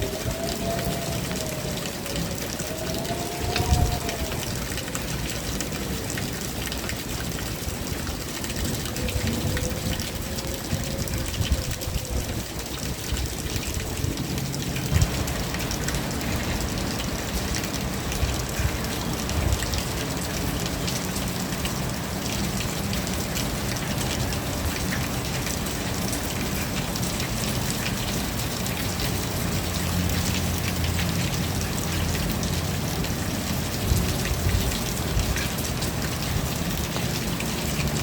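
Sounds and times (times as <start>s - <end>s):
low rumbling rain wash: 0.0s - 38.0s
raindrops tapping on a surface: 0.0s - 38.0s.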